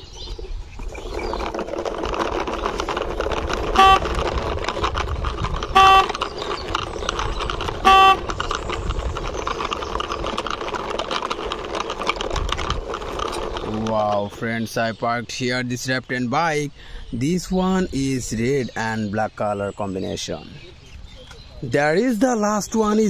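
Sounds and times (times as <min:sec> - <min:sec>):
toy wheels rolling on concrete: 0:00.0 - 0:15.8, 0:20.7 - 0:23.0
toy horn toots: 0:03.6 - 0:04.5, 0:05.7 - 0:06.4, 0:07.8 - 0:08.4.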